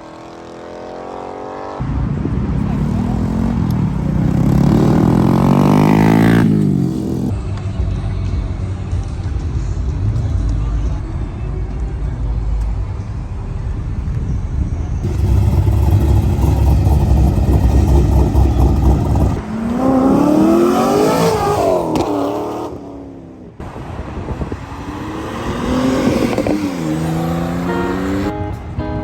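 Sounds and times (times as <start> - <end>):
car engine revving: 2.6 - 7.3, 15.0 - 23.6, 24.4 - 28.5
car exhaust rumbling: 15.0 - 20.7.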